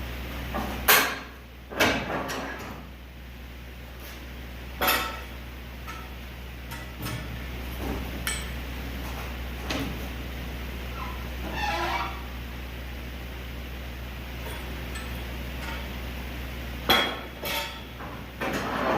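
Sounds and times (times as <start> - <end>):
steady low hum: 0.0 - 18.9
metal clanks and knocks: 4.8 - 8.6, 16.8 - 18.9.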